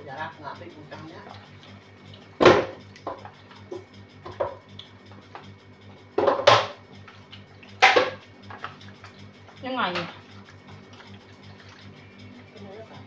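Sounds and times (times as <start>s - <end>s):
faint steady low hum: 0.0s - 13.0s
kitchen utensils and dishes clinking: 7.8s - 8.9s.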